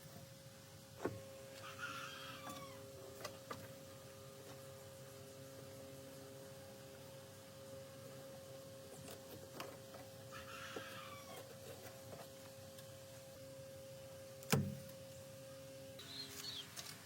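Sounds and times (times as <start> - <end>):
steady hum: 0.0 - 17.0
short bird-like call: 16.0 - 16.7.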